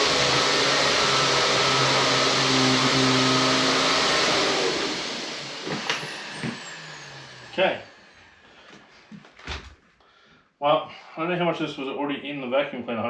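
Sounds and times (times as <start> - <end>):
motor winding down: 0.0 - 8.4
vacuum cleaner running: 0.0 - 9.2.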